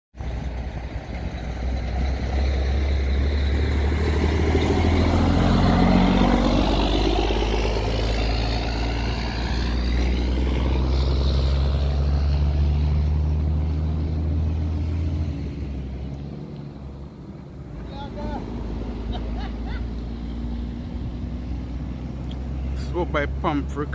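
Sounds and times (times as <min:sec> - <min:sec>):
vehicle passing by: 0:00.2 - 0:23.9.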